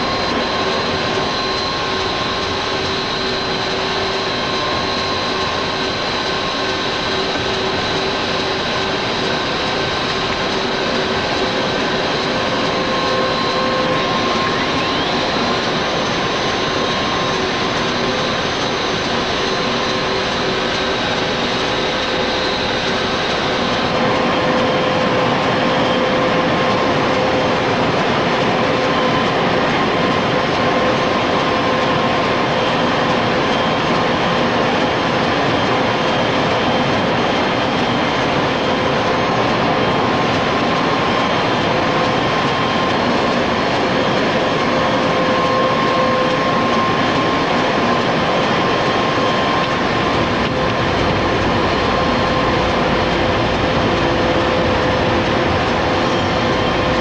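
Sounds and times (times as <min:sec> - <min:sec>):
constant high whine: 0:00.0 - 0:57.0
jet engine running: 0:00.0 - 0:57.0.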